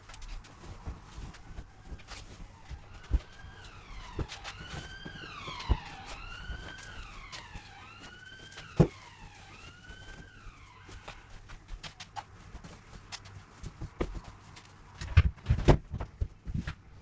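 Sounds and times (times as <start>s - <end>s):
siren wailing: 0.6s - 11.6s.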